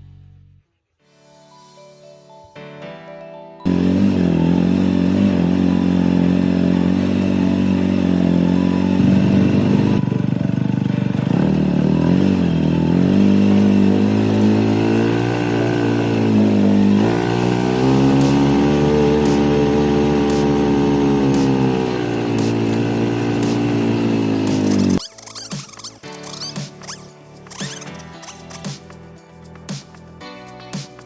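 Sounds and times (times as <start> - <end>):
tractor diesel engine under load: 3.7 - 26.4.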